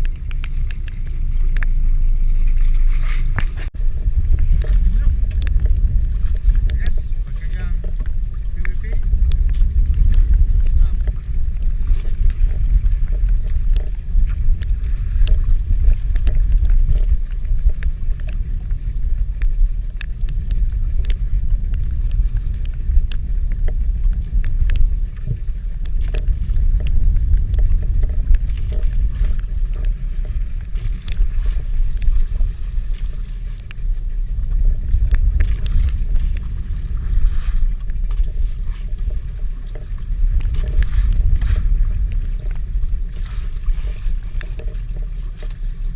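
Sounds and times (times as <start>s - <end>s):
light ticks: 0.0s - 1.8s, 4.4s - 32.2s, 32.9s - 33.9s, 34.5s - 36.5s
wind rumble on microphone: 0.0s - 45.9s.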